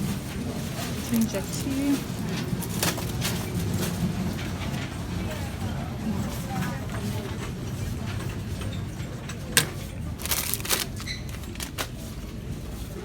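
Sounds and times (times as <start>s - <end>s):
items clicking and rattling: 0.0s - 5.2s, 7.0s - 12.6s
low store hum: 0.0s - 13.0s.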